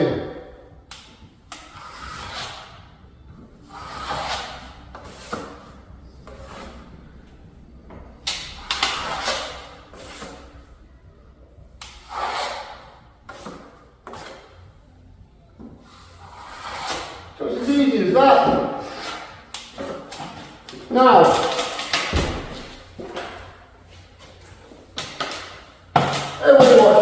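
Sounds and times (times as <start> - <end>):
trowel scraping wet filler: 3.7 - 5.6, 12.0 - 13.6, 16.2 - 17.2.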